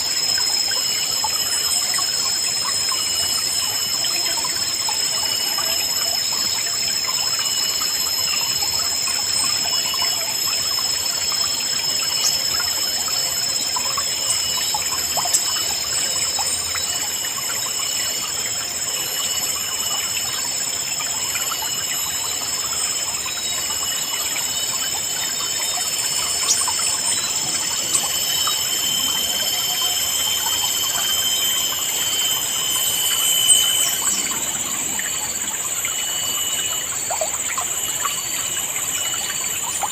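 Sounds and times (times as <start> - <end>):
high-pitched ringing: 21.6 - 39.7.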